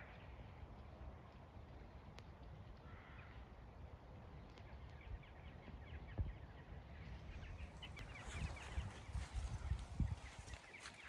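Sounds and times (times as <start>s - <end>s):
small birds chirping: 4.2s - 11.0s.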